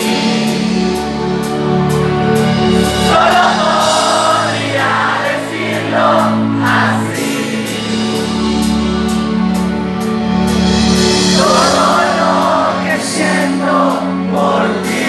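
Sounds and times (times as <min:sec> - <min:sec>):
live band playing: 0:00.0 - 0:15.0
crowd singing: 0:02.2 - 0:08.6, 0:11.0 - 0:15.0.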